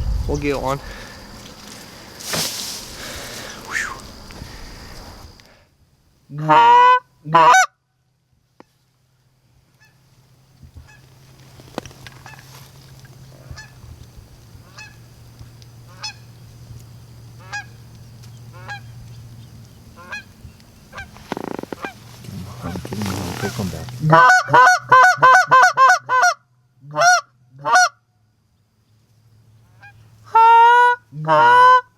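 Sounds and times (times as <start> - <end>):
low steady hum: 0.0 - 6.3
goose honking: 6.4 - 7.7, 18.5 - 18.9, 20.0 - 20.3, 20.9 - 27.9, 29.8 - 31.9.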